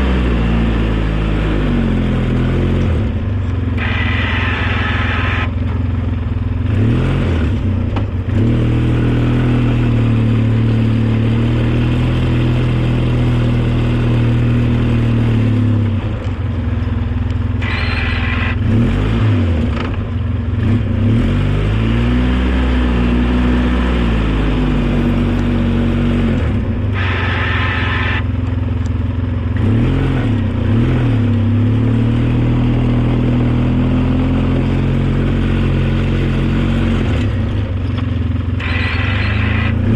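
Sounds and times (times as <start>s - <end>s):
vehicle engine revving under load: 0.0s - 16.8s, 17.4s - 39.9s
high-pitched whine: 3.0s - 6.2s, 17.6s - 19.0s, 26.0s - 28.4s, 38.5s - 39.9s.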